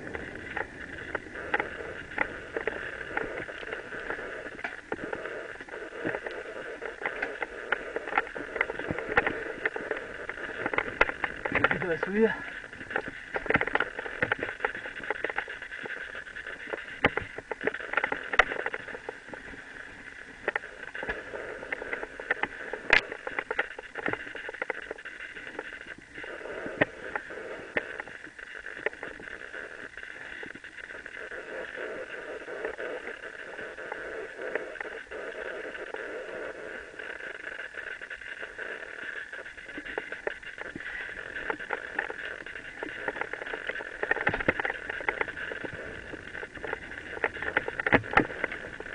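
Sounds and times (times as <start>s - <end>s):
bike rattling: 0.0s - 26.0s, 39.4s - 48.9s.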